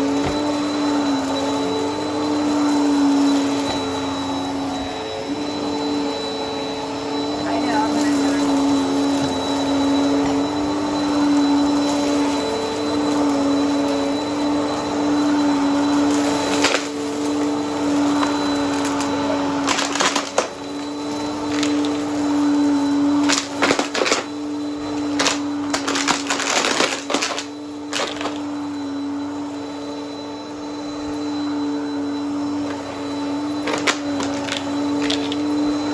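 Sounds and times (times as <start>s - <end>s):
vacuum cleaner running: 0.0s - 35.9s
debris crunching in vacuum: 15.7s - 28.5s, 33.6s - 35.6s.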